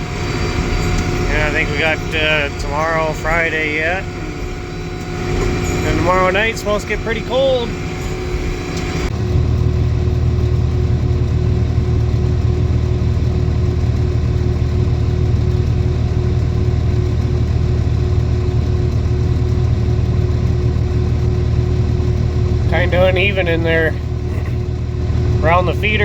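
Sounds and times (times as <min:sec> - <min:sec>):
farm machine engine running: 0:00.0 - 0:26.0
steady whine: 0:00.0 - 0:26.0.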